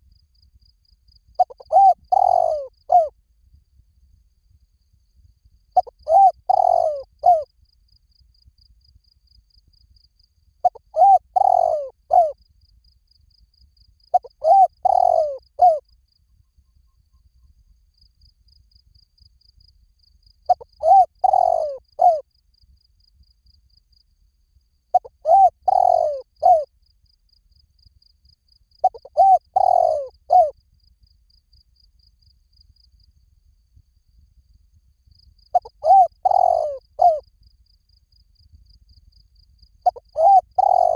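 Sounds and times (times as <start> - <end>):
dove cooing: 1.4 - 3.1, 5.8 - 7.4, 10.6 - 12.4, 14.1 - 15.8, 20.5 - 22.2, 25.0 - 26.7, 28.8 - 30.5, 35.6 - 37.2, 39.8 - 40.9.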